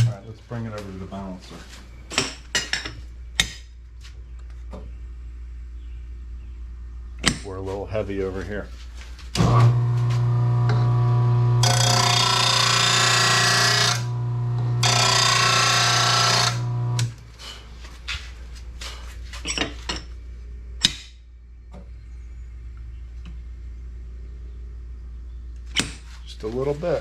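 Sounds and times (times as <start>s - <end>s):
blade grinding on wheel: 9.4s - 17.2s
sharpener motor humming: 9.4s - 17.2s.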